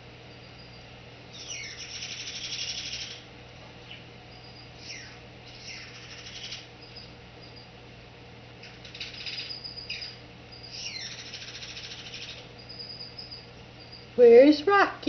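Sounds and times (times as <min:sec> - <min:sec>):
steady low hum: 0:00.0 - 0:15.0
parrot chattering: 0:01.3 - 0:03.2, 0:04.8 - 0:06.7, 0:08.6 - 0:13.3.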